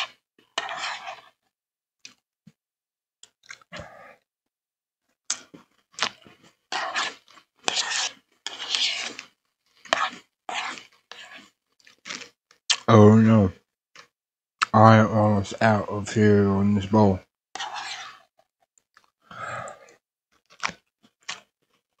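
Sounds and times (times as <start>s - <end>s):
crunchy cereal chewing: 5.3s - 12.9s.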